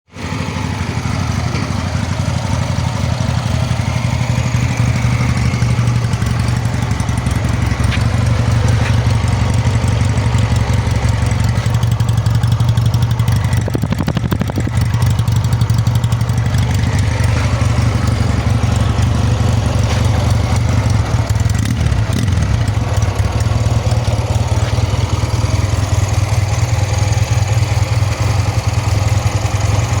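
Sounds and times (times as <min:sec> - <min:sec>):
motorcycle engine idling: 0:00.2 - 0:30.0.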